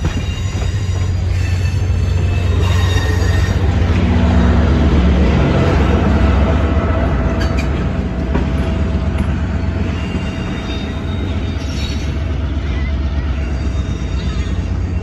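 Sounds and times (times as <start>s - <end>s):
faint wheel squeal: 0.0s - 3.7s
locomotive engine rumbling: 0.0s - 15.0s.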